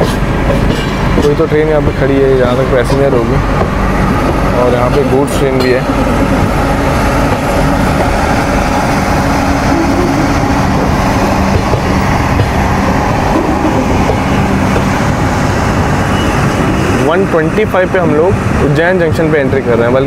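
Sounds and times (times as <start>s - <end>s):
passenger train running: 0.0s - 20.0s.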